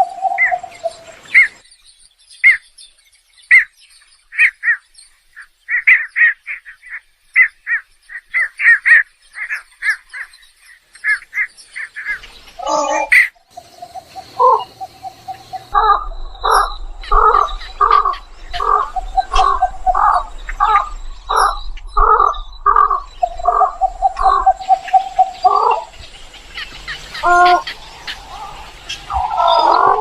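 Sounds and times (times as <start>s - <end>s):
egrets calling: 12.6s - 30.0s.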